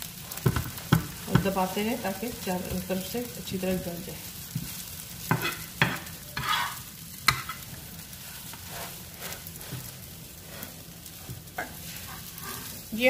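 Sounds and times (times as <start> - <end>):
bread sizzling in a frying pan: 0.0 - 13.0
spatula clacking on pan: 5.2 - 7.7
metal spatula scraping: 5.2 - 13.0.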